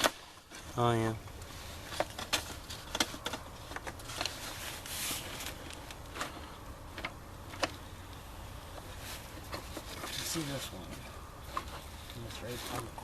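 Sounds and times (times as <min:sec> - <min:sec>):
short rustle: 0:00.1 - 0:06.6.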